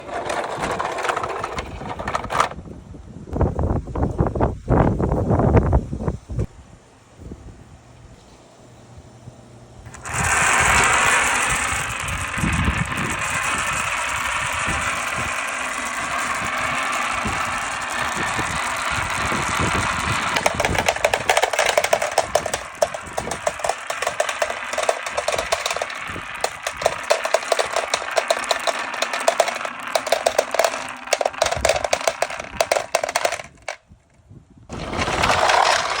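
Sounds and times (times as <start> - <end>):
marbles rolling down plastic track: 0.0 - 2.6, 9.9 - 33.8, 34.7 - 36.0
marbles clicking together: 9.9 - 33.8, 34.8 - 36.0.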